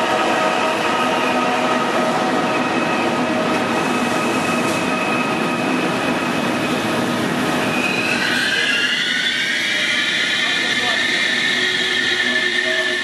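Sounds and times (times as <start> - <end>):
high wheel squeal: 7.5 - 13.0.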